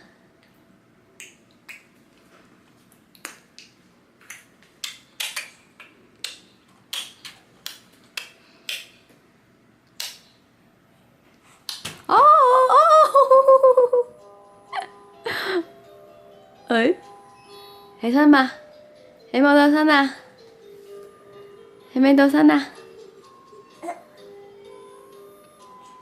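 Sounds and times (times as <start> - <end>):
baby making clicking sounds: 3.2 - 8.9, 10.0 - 10.3.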